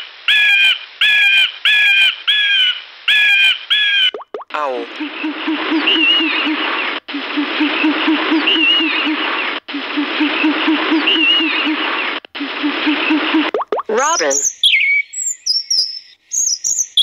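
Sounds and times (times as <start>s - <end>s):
owl hooting: 0.3s - 4.1s, 4.9s - 13.5s
higher rising and falling call: 4.5s - 15.0s.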